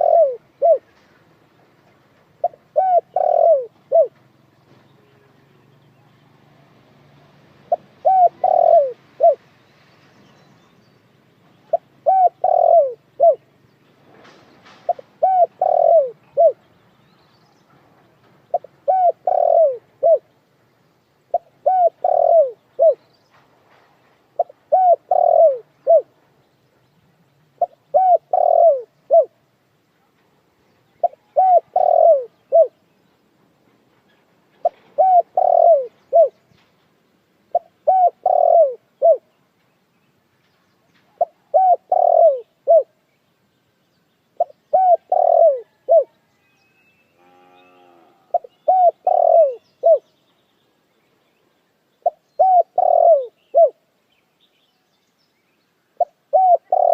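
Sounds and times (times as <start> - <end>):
dove cooing: 0.0 - 0.9, 2.4 - 4.2, 7.6 - 9.4, 11.7 - 13.4, 14.9 - 16.6, 18.5 - 20.3, 21.3 - 23.0, 24.4 - 26.1, 27.6 - 29.4, 31.0 - 32.8, 34.6 - 36.4, 37.5 - 39.2, 41.1 - 42.9, 44.4 - 46.2, 48.0 - 50.1, 52.0 - 53.8, 56.0 - 56.9.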